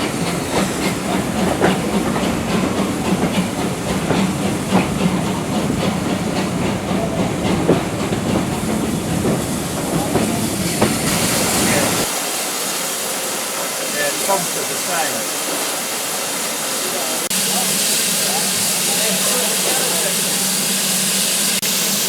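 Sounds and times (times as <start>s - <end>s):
train wheels clicking over rails: 0.0s - 12.2s
steam train rumble and hiss: 0.0s - 22.0s.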